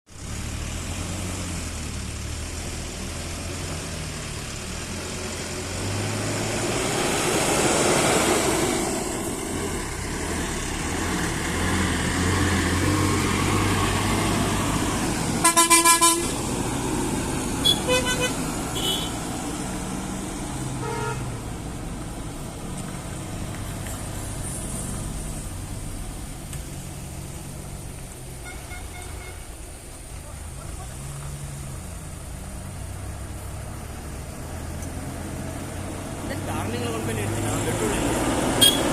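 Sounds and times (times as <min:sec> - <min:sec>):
road noise: 0:00.1 - 0:38.9
vehicle horn pulses: 0:15.4 - 0:16.4, 0:17.6 - 0:19.2, 0:20.8 - 0:21.3, 0:28.4 - 0:29.5, 0:38.6 - 0:38.9.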